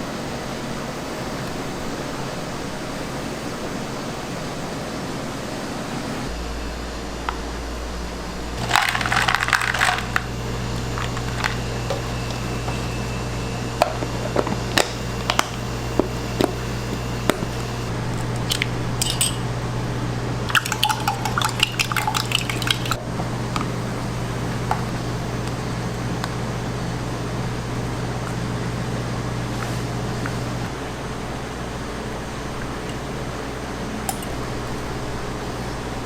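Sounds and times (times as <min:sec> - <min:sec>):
steady low hum: 0:00.0 - 0:36.0
kitchen utensils and dishes clinking: 0:08.6 - 0:10.3, 0:18.4 - 0:19.5.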